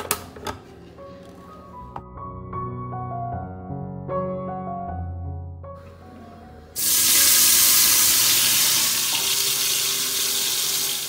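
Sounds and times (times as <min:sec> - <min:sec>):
tomatoes sizzling in hot oil: 0:06.8 - 0:11.0.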